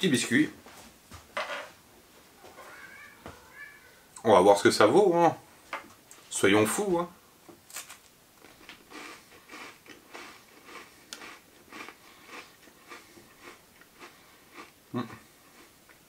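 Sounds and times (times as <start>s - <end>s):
biscuit crunching: 7.7s - 14.8s.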